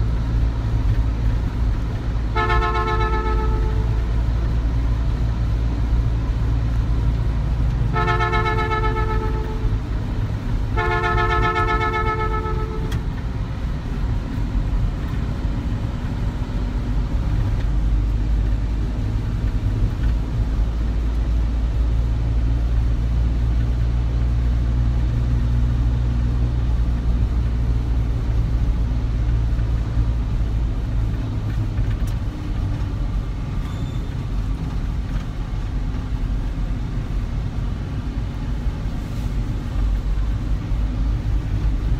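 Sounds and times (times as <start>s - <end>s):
engine and road rumble: 0.0s - 41.9s
vehicle horn honking: 2.3s - 4.1s, 7.9s - 9.8s, 10.7s - 13.1s.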